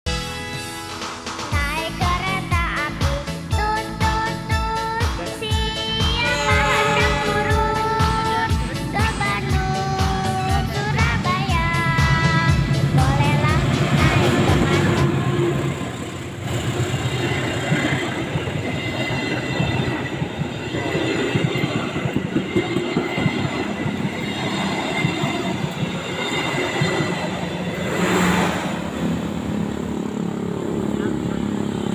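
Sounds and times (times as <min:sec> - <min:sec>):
train wheels clattering over rails: 0:08.0 - 0:31.0.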